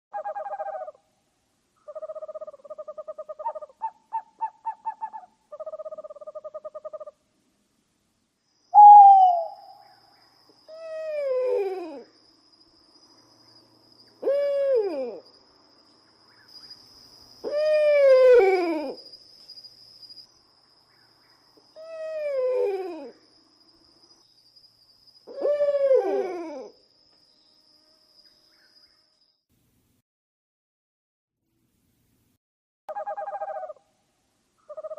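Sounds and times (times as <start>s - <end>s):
owl calling: 0.1s - 1.0s, 1.8s - 7.2s, 8.7s - 12.1s, 14.2s - 15.2s, 17.4s - 19.0s, 25.2s - 26.7s, 32.9s - 33.9s, 34.6s - 34.9s
faint steady high tone: 8.4s - 29.4s.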